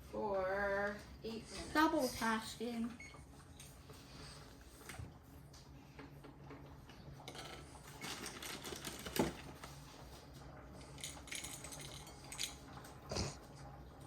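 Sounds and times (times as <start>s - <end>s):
kitchen utensils and dishes clinking: 7.2s - 9.5s, 10.8s - 13.4s.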